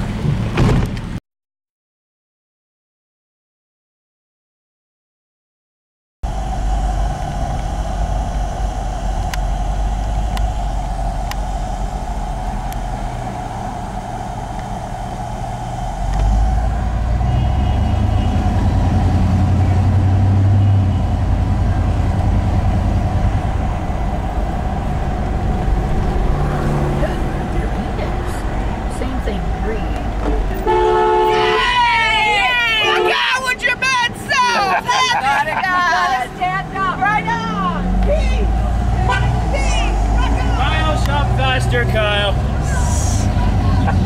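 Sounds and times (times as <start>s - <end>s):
road noise: 0.0s - 1.2s, 6.2s - 44.0s
vehicle engine rumble: 0.0s - 1.2s, 6.2s - 44.0s.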